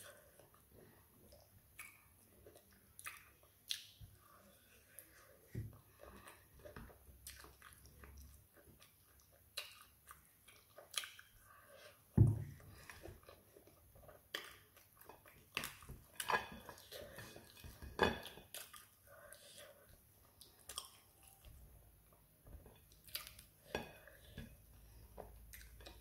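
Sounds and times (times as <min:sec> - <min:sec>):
person chewing food: 0:00.0 - 0:26.0
wet mouth clicks and lip smacks: 0:01.3 - 0:04.0, 0:09.1 - 0:11.3
dull thump: 0:12.2 - 0:12.6.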